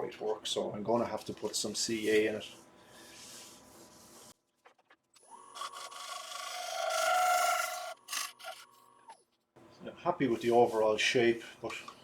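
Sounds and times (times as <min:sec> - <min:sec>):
wood lathe whining: 0:05.6 - 0:08.6
tool scraping spinning bowl: 0:05.6 - 0:08.7.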